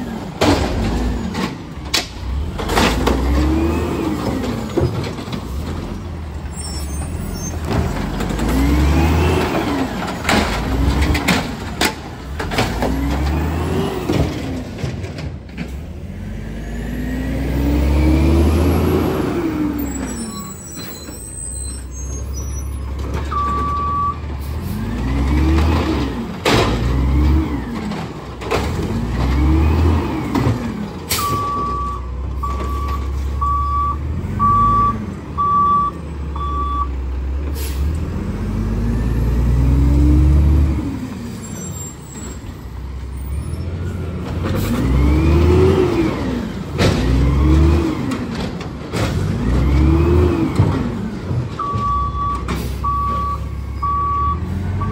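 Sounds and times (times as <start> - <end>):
diesel engine revving: 0.0 - 54.9
sharp bangs and clatter: 24.9 - 29.6
backup alarm beeping: 31.2 - 36.9, 51.6 - 54.9
single beep: 31.2 - 36.9.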